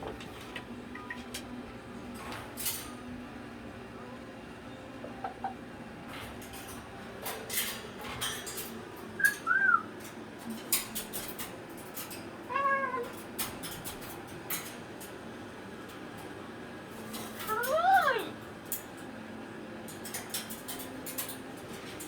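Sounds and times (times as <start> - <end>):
meow-like calls: 12.5 - 13.1.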